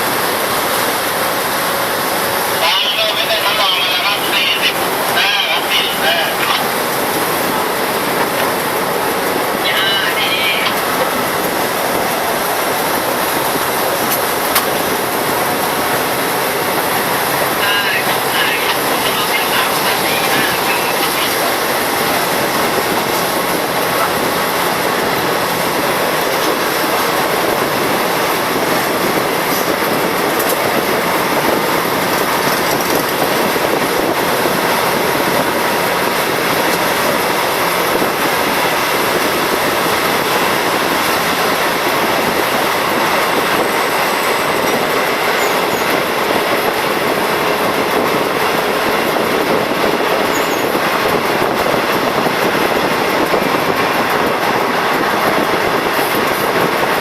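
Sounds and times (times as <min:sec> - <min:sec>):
train running on rails: 0:00.0 - 0:57.0.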